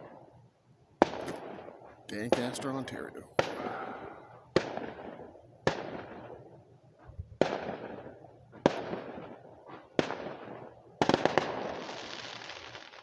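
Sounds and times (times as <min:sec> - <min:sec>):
fireworks bursting with sharp bangs: 0:01.0 - 0:06.5, 0:07.4 - 0:13.0.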